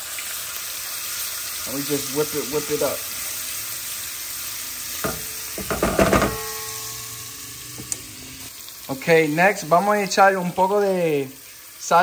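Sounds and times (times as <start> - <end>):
food sizzling in oil: 0.0 - 12.0
metal clanks with ringing: 5.0 - 7.4.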